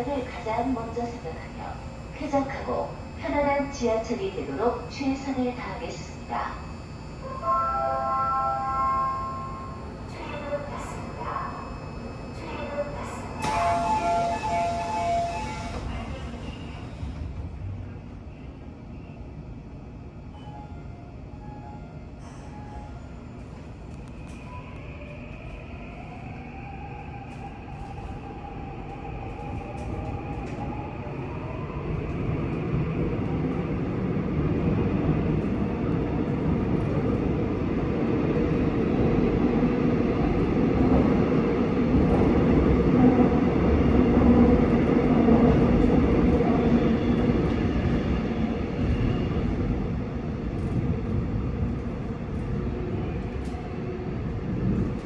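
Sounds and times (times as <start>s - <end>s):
traction motor whine: 0.8s - 17.4s.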